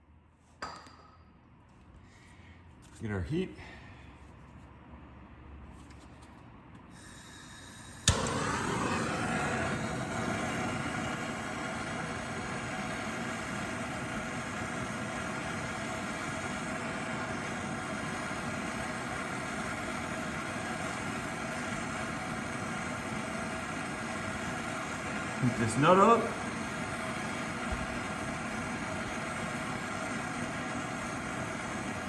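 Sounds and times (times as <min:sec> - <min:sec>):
gas torch hissing: 0:06.9 - 0:32.0.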